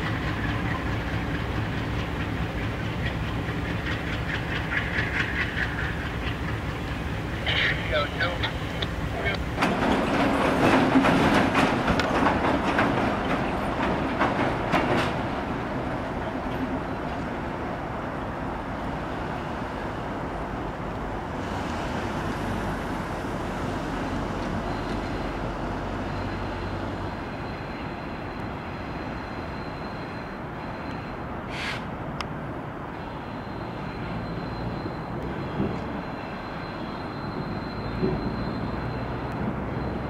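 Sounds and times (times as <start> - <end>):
train wheels clicking over rail joints: 0.0 - 17.4, 34.3 - 39.6
train rumble: 0.0 - 40.0.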